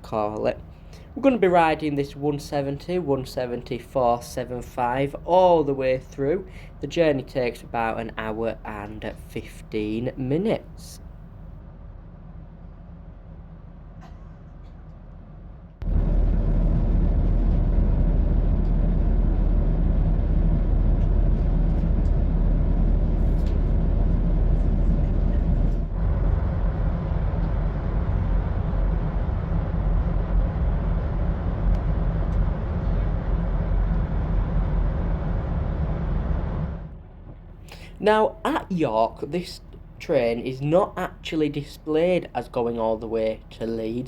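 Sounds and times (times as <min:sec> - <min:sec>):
diesel train engine idling: 0:00.0 - 0:40.3.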